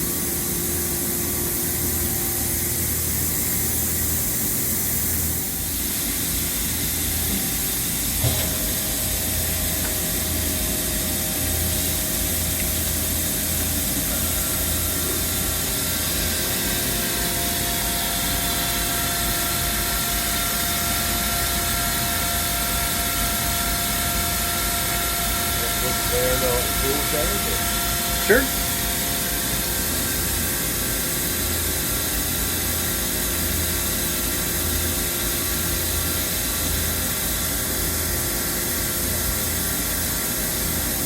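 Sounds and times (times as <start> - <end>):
higher machine whine: 0.0 - 31.0
milling machine hiss: 0.0 - 41.0
steady machine whine: 0.0 - 41.0.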